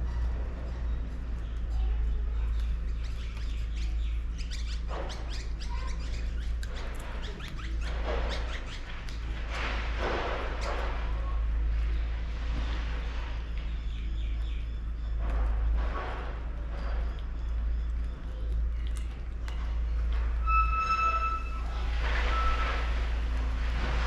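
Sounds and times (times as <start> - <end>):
steady low hum: 0.0 - 24.0
scraping bursts: 19.7 - 24.0.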